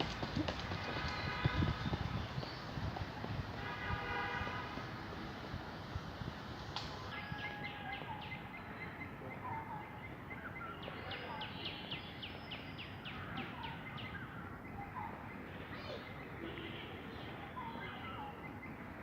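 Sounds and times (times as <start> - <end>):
birds chirping: 0.0 - 3.2, 7.1 - 19.0
outdoor background hiss: 2.2 - 19.0.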